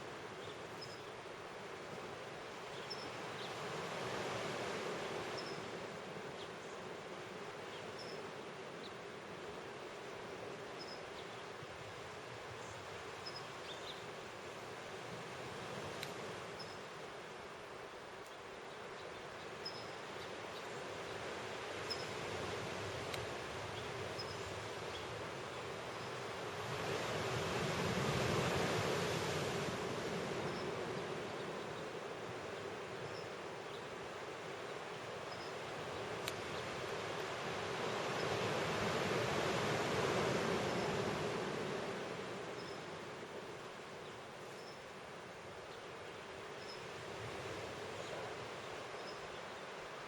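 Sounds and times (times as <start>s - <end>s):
ocean surf: 21.2s - 33.0s, 35.7s - 43.5s.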